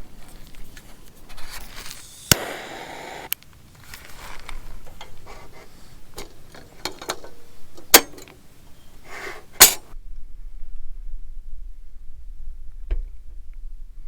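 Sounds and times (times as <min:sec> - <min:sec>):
objects clicking and clattering: 0:03.8 - 0:08.4, 0:09.0 - 0:09.9.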